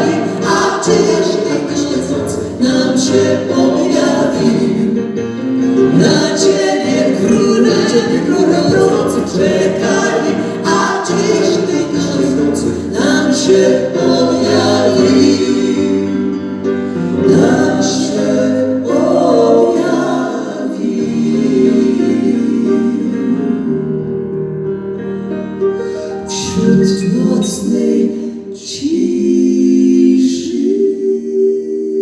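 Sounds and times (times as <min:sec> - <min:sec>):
choir singing a carol: 0:00.0 - 0:24.6, 0:26.3 - 0:32.0.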